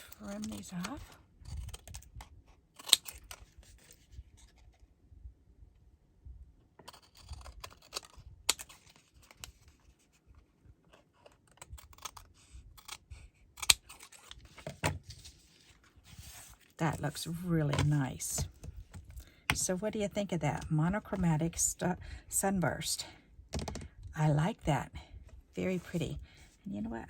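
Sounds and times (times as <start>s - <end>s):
scissors snipping paper: 6.9s - 9.5s
paper rustling: 13.9s - 17.1s.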